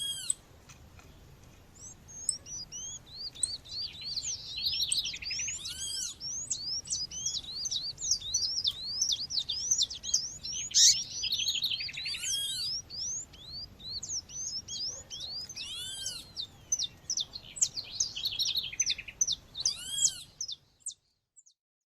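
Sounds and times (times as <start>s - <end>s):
quick high bird chirps: 1.8s - 21.0s
loud arched bird call: 3.8s - 20.4s.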